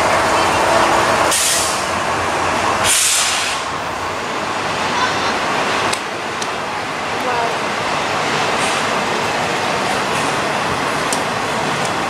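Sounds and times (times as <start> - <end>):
train rumbling: 0.0 - 12.0
short air hisses: 1.3 - 1.9, 2.8 - 3.7.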